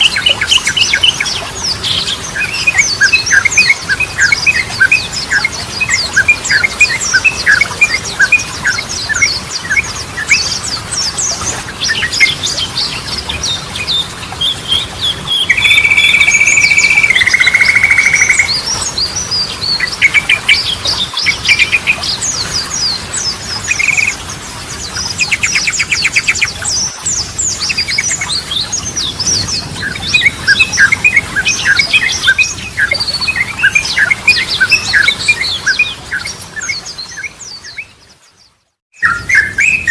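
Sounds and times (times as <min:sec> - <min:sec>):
bird chattering chirps: 0:15.5 - 0:18.6, 0:23.7 - 0:24.2
buzzy bird trill: 0:15.5 - 0:18.6, 0:23.7 - 0:24.2.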